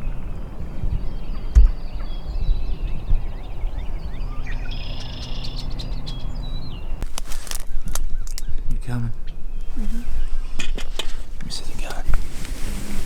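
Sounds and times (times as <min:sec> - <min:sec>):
songbirds chirping and singing: 0:00.0 - 0:12.6
brief rustle: 0:07.0 - 0:08.1, 0:10.6 - 0:13.0.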